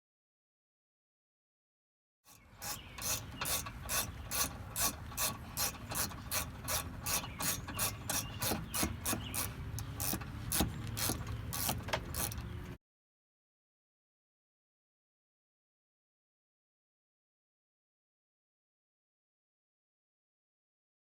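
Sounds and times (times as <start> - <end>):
ratchet wrench clicking: 2.6 - 12.5.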